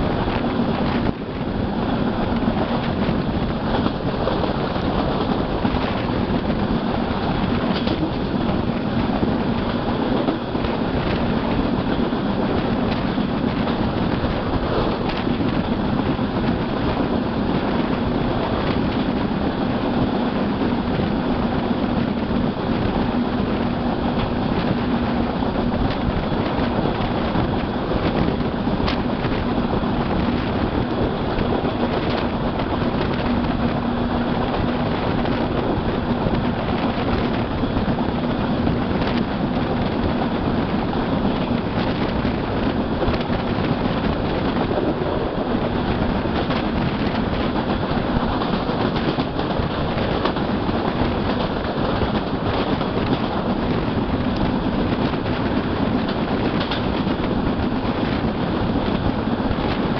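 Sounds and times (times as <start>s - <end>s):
train wheels on rails: 0.0s - 59.9s
wind rushing: 0.0s - 59.9s.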